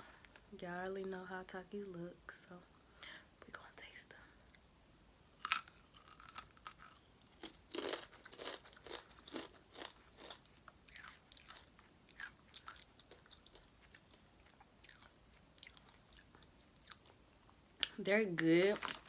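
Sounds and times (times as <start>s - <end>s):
person crunching chips: 5.3s - 14.1s, 18.7s - 19.0s.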